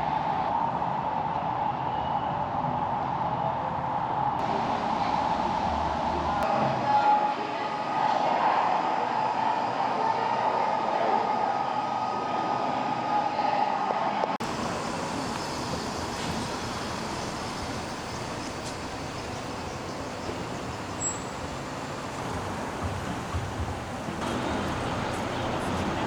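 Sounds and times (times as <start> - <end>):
even featureless noise: 14.4 - 26.0
vehicle noise with held tone: 14.4 - 26.0.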